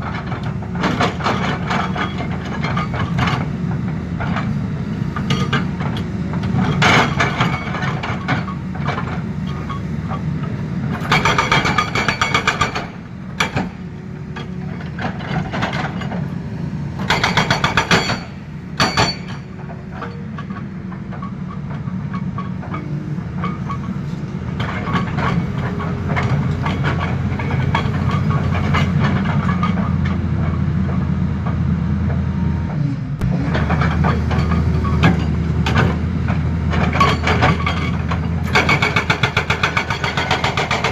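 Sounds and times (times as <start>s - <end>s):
excavator diesel engine running: 0.0s - 40.9s
hydraulic breaker hammering: 10.9s - 16.4s, 17.0s - 20.6s, 33.2s - 40.9s.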